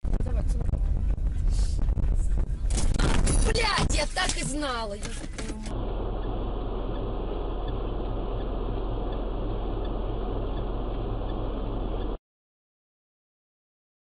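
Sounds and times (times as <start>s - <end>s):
car engine idling: 3.6s - 12.2s
faint regular ticking: 5.5s - 12.2s.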